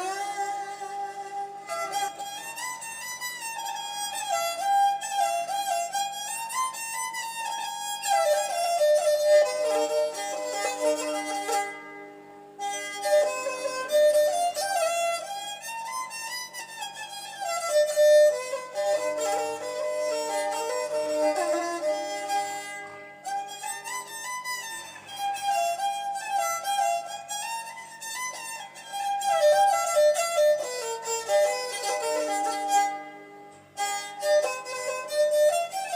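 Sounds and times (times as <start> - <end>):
bowed fiddle melody: 0.0 - 35.9.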